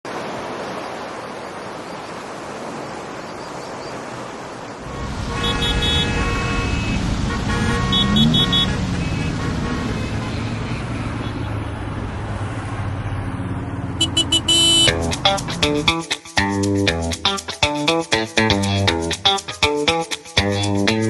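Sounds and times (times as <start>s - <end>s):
traffic hiss: 4.8s - 12.7s
vehicle low rumble: 4.8s - 15.2s
car horn short toots: 4.9s - 10.4s, 14.0s - 15.0s.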